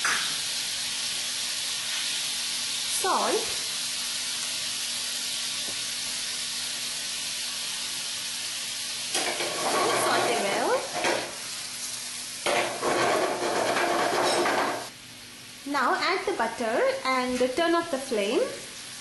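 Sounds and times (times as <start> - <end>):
shrimp sizzling in frying pan: 0.0 - 19.0
spatula stirring and scraping pan: 9.1 - 11.4, 12.4 - 14.9.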